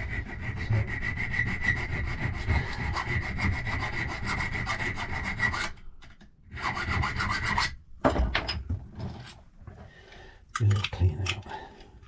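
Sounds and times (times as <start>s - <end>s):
hand file filing brass: 0.0s - 5.8s, 6.5s - 7.8s.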